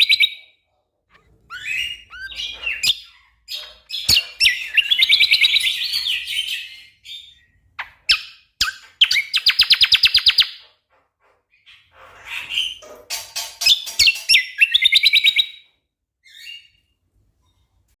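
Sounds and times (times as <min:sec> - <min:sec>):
songbird singing rapid phrases: 0:01.5 - 0:10.6, 0:13.8 - 0:15.6.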